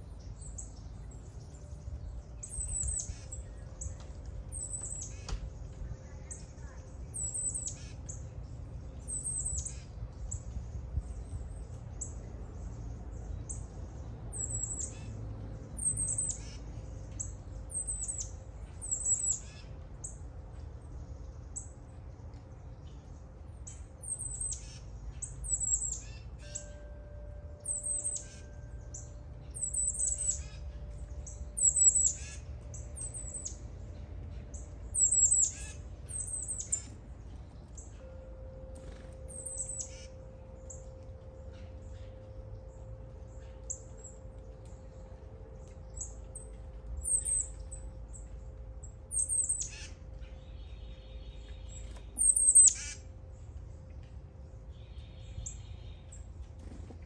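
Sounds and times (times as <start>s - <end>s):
low wind rumble: 0.0s - 24.3s
songbird high downward calls: 1.6s - 8.2s, 27.6s - 33.7s, 34.5s - 37.0s, 38.8s - 44.2s, 45.6s - 48.4s, 49.1s - 53.0s.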